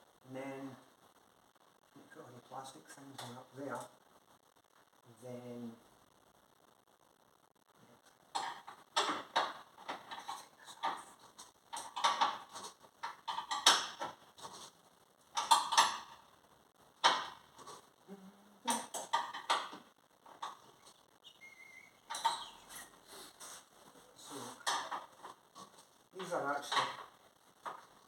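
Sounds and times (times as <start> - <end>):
clicks knocks and rattles of parts: 8.3 - 14.6, 15.3 - 16.2, 17.0 - 17.5, 18.7 - 20.7, 24.6 - 25.4, 26.2 - 27.9.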